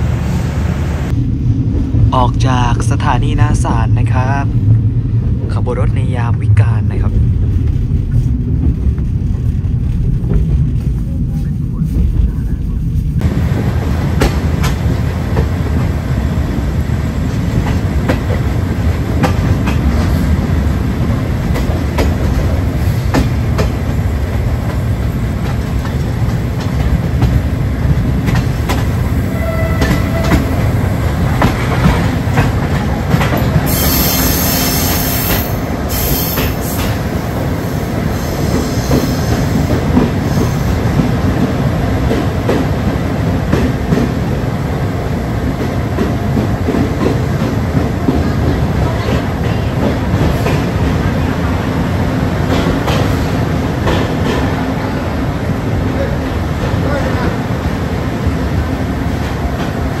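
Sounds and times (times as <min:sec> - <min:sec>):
train rumbling at speed: 0:00.0 - 1:00.0
shrill wheel squeal: 0:29.3 - 0:30.6, 0:33.7 - 0:37.0.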